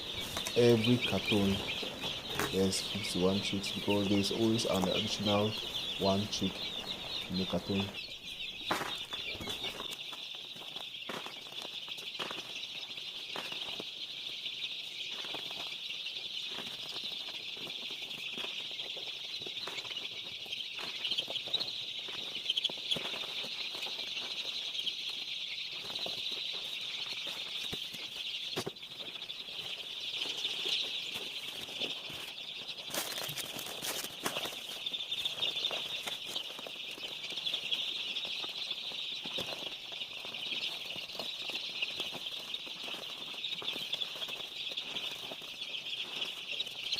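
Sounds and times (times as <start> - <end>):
chicks peeping: 0.0 - 46.9.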